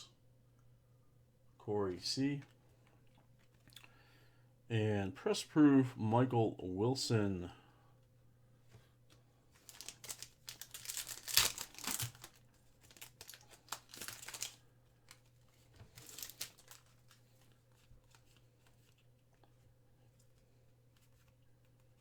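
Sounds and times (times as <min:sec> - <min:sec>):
faint steady hum: 0:00.0 - 0:22.0
wrapper being torn and crinkled: 0:09.6 - 0:18.7.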